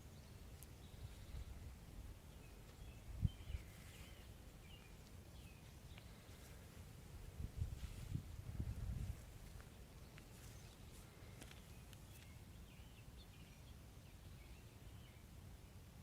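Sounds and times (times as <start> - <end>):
small birds chirping: 0.0 - 15.8
wind rumble on microphone: 2.8 - 4.1, 7.2 - 9.6.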